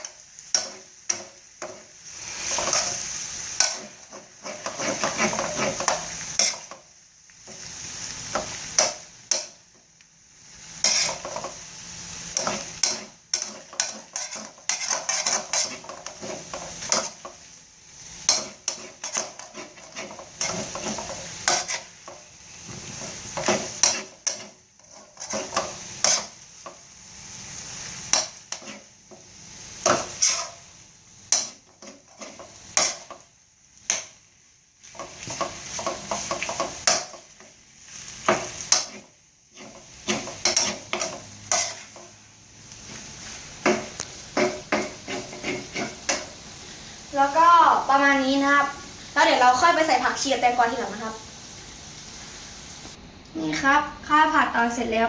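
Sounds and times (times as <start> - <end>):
metal spatula scraping frying pan: 0.0 - 6.8, 10.8 - 26.4, 27.6 - 28.9, 29.8 - 30.7, 31.3 - 33.2, 34.8 - 37.3, 37.9 - 46.4
low sizzle: 0.0 - 55.0.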